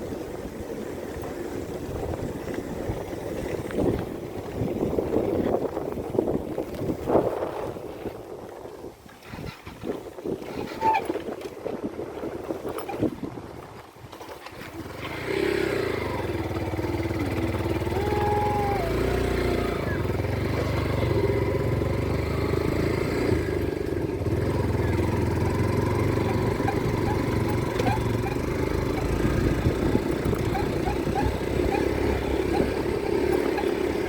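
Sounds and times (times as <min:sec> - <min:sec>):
motorcycle engine running: 0:14.0 - 0:34.0.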